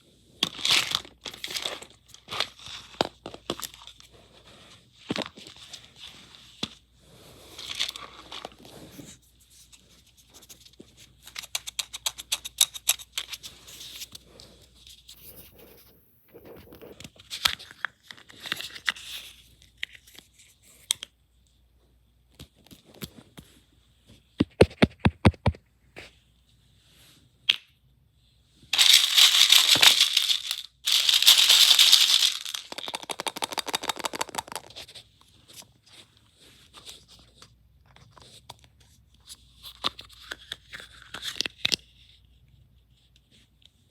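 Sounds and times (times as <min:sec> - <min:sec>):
wrappers crinkling and tearing: 0:28.8 - 0:34.7
plastic parts rattling and clicking: 0:28.8 - 0:34.8.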